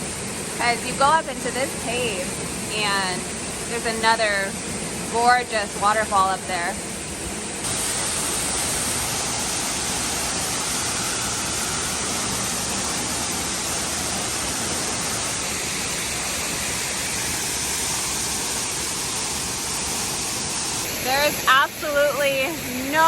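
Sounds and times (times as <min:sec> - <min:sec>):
waterfall rushing: 0:07.6 - 0:23.0.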